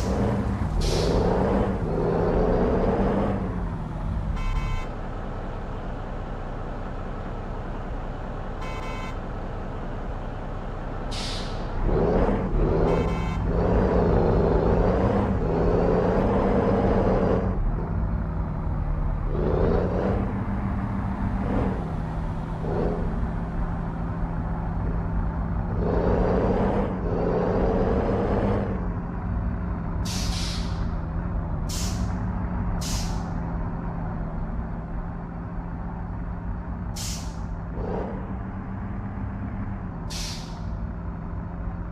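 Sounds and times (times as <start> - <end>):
truck diesel engine revving: 0.0 - 4.8, 11.1 - 41.8
air brake hissing: 0.8 - 1.2, 11.1 - 11.7, 30.0 - 30.9, 31.7 - 32.2, 32.8 - 33.3, 37.0 - 37.4, 40.1 - 40.7.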